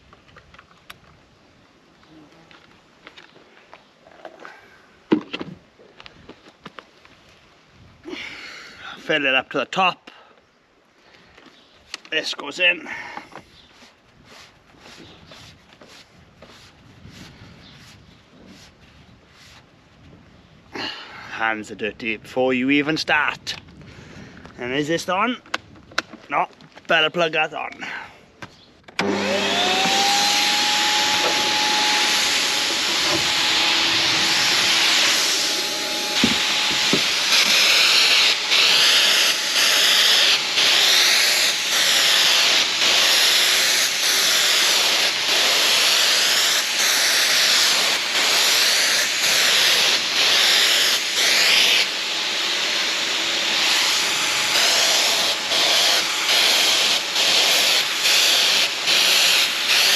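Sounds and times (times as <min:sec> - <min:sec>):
paint sprayer motor whine: 0:29.0 - 0:59.9
hiss of air and spray: 0:29.7 - 0:59.9.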